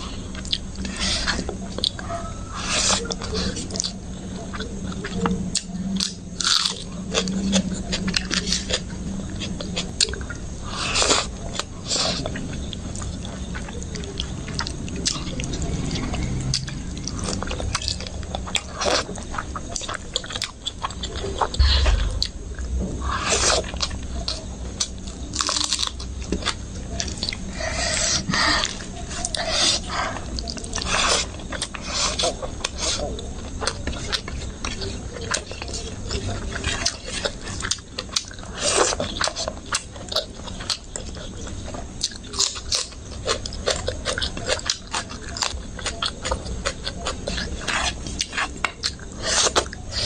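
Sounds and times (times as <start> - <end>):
person chewing and smacking: 2.7 - 22.4, 23.3 - 50.0
low thump: 21.6 - 23.0.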